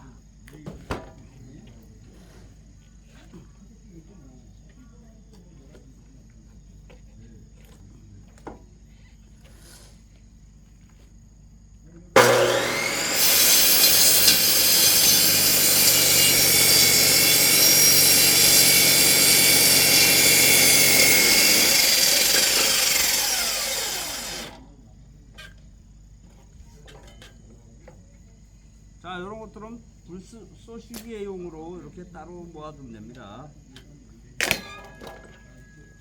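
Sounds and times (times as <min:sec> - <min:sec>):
saw cutting into log: 0:12.2 - 0:24.6
saw motor winding down: 0:12.2 - 0:24.6.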